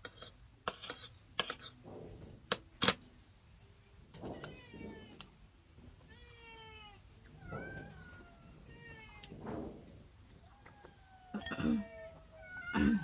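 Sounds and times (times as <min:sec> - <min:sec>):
cat meowing: 0:06.1 - 0:09.4, 0:10.4 - 0:13.0.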